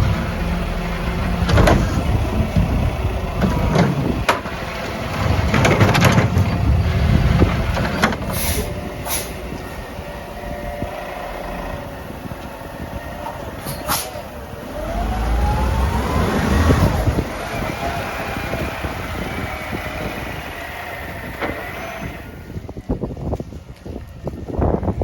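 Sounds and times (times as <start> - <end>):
garbage truck diesel engine: 0.0 - 23.4
sharp clanks and bangs: 1.3 - 2.7, 3.4 - 8.8.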